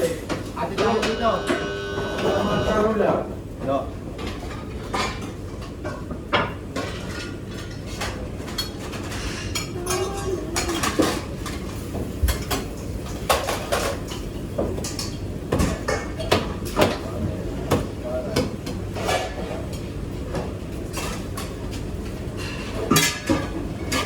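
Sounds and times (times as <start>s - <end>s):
dishes and cutlery clattering: 4.2s - 17.0s, 18.9s - 19.7s, 22.4s - 24.0s.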